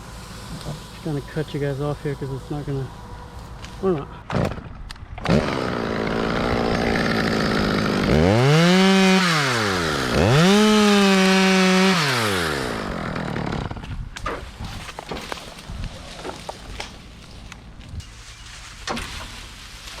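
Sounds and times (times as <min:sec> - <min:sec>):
chainsaw revving: 0:00.0 - 0:13.8.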